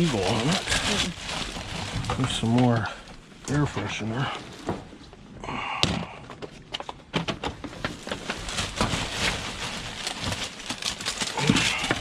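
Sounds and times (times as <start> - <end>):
plastic bag rustling: 0.0 - 5.1, 7.7 - 12.0
items knocking and clattering: 5.8 - 12.0.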